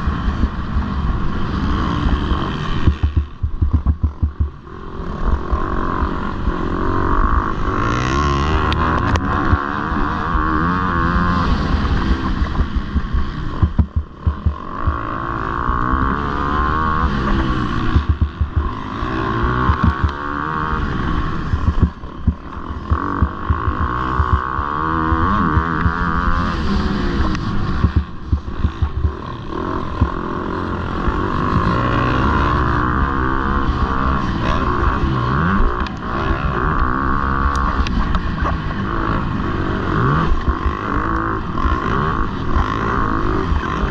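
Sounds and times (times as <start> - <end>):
wind noise on microphone: 0.0 - 5.8, 8.0 - 43.9
motocross bike engines revving: 0.0 - 43.9.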